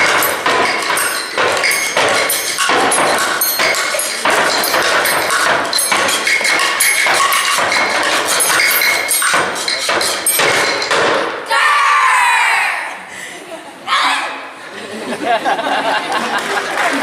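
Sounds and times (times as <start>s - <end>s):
knocks and thuds: 0.0s - 11.4s
loud shout: 11.4s - 13.1s, 13.8s - 14.6s.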